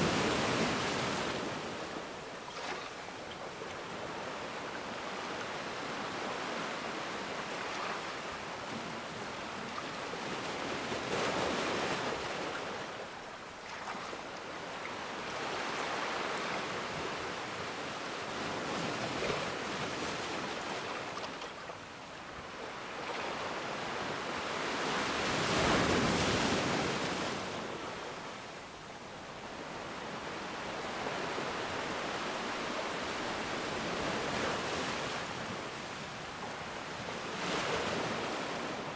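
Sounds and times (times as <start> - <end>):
ocean waves breaking: 0.0 - 21.8.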